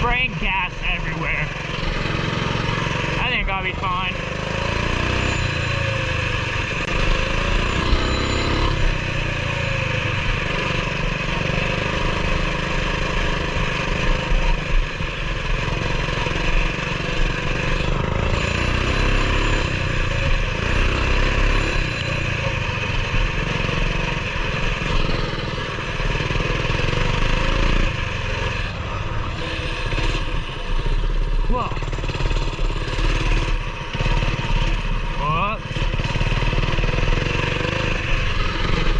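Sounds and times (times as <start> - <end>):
mini bike engine revving: 0.0 - 38.9.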